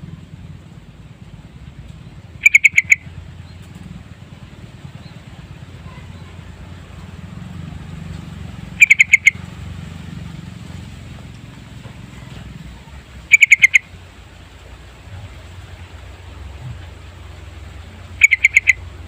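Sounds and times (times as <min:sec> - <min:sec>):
steady low hum: 0:00.0 - 0:19.0
bird calling sharp notes: 0:02.3 - 0:03.6, 0:08.7 - 0:09.6, 0:13.2 - 0:14.0, 0:17.9 - 0:19.0.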